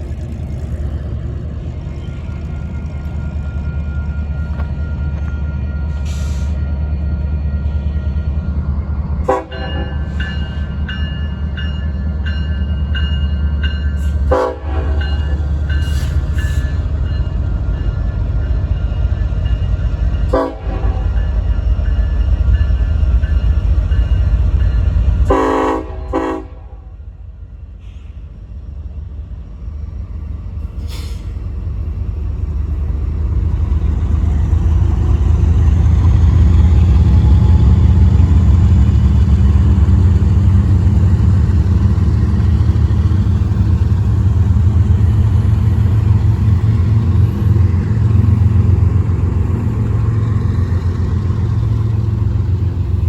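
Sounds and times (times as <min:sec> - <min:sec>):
rumble of passing train: 0:00.0 - 0:53.0
locomotive horn blowing: 0:09.2 - 0:10.1, 0:14.2 - 0:15.2, 0:20.3 - 0:21.2, 0:25.2 - 0:27.0.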